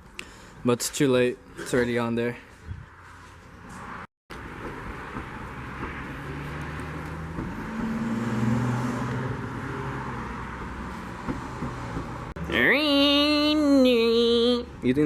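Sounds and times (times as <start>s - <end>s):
car passing by: 2.9s - 12.3s.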